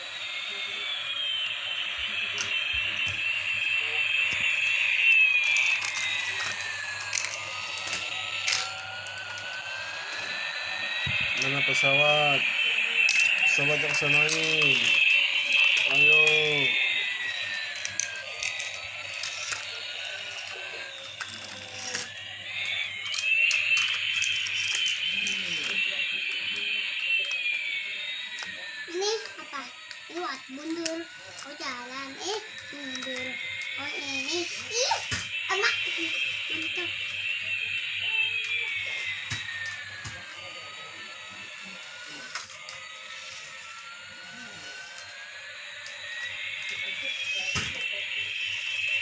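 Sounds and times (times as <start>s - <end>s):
toy airplane electronic tone: 0.0s - 49.0s.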